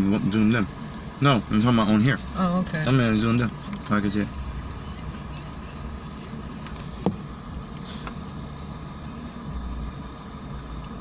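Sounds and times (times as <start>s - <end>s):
vehicle engine idling: 0.0s - 11.0s
short hiss: 7.7s - 8.3s.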